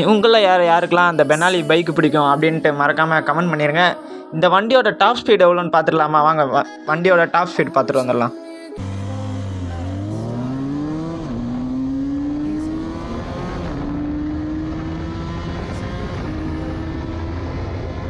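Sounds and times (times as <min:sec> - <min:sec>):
motorcycle engine accelerating: 0:08.8 - 0:18.0.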